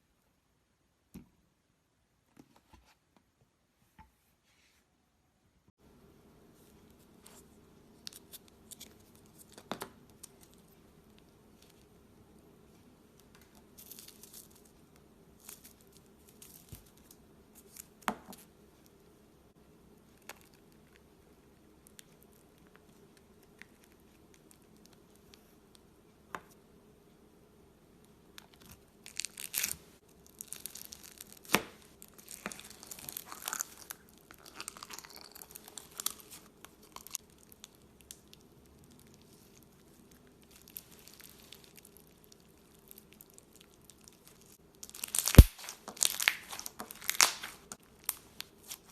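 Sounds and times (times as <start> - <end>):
slime clicking and popping: 44.8 - 48.2.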